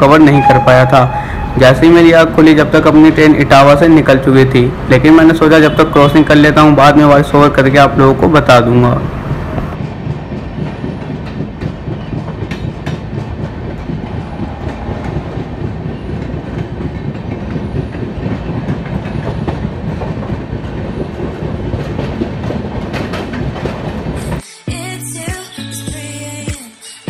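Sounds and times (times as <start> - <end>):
train rumbling along track: 0.0 - 24.4
wheels clicking over rail joints: 9.8 - 24.4.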